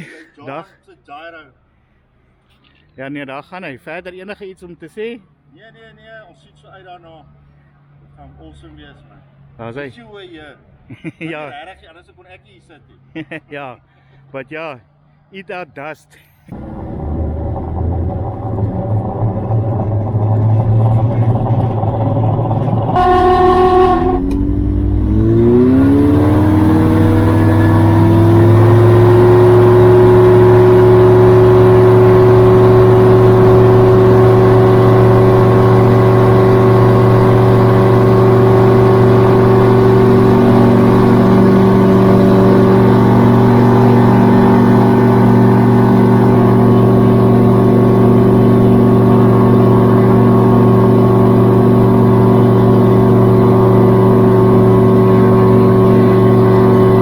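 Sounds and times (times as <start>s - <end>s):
aircraft engine revving: 16.5s - 57.0s.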